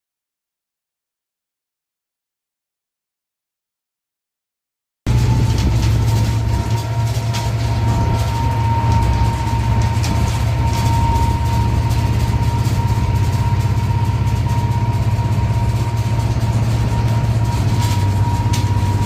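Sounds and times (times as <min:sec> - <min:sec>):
heavy vehicle engine droning: 0:05.1 - 0:19.0
thin steady whine: 0:05.1 - 0:19.0.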